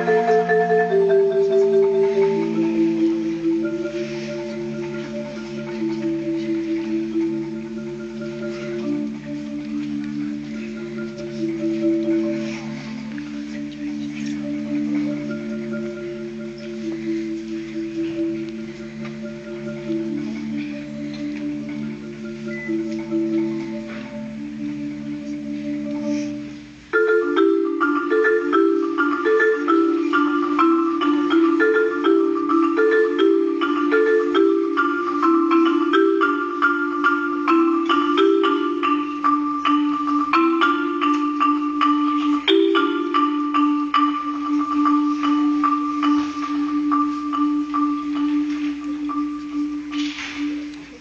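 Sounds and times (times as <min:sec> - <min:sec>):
marimba played with mallets: 0:00.0 - 0:51.0.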